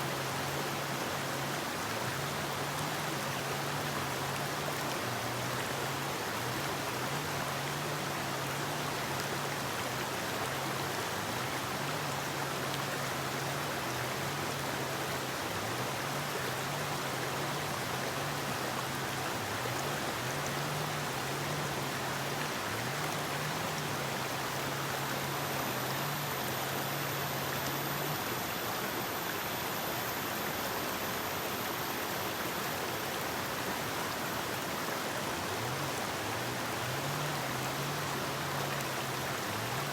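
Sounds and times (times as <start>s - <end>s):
river water rushing: 0.0s - 39.9s
faint low wavering hum: 11.5s - 39.9s.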